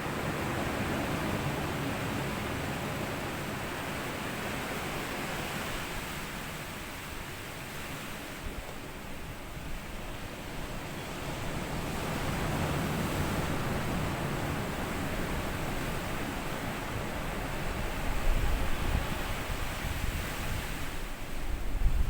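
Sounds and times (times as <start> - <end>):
waves washing on sandy beach: 0.0 - 22.0
wind rumble on microphone: 8.0 - 22.0.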